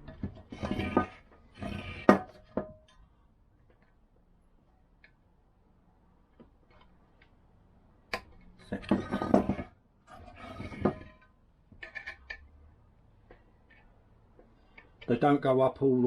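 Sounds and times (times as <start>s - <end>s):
scraping and rubbing of parts: 0.0s - 3.9s, 8.1s - 12.5s.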